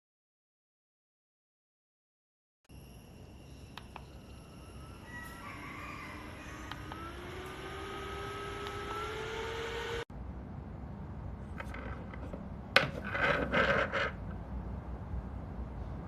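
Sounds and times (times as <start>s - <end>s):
handheld fan motor whine: 2.8s - 10.1s
clicks: 6.6s - 7.6s, 8.5s - 9.2s.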